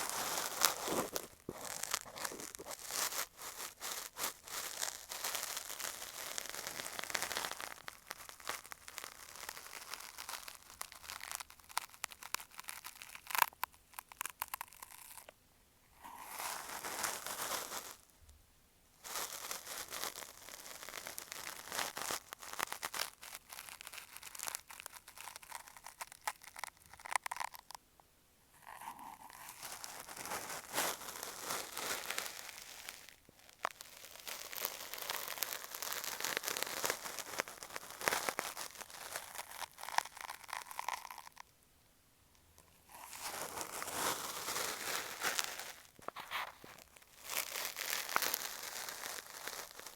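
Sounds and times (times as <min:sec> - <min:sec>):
cotton swab scraping microphone: 0:00.0 - 0:04.4, 0:45.7 - 0:47.0.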